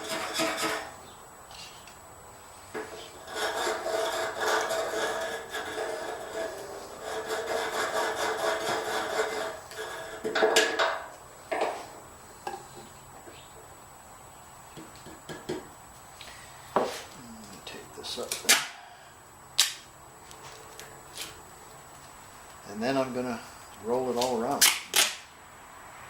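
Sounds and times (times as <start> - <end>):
hand scraping and rubbing: 2.5 - 10.3.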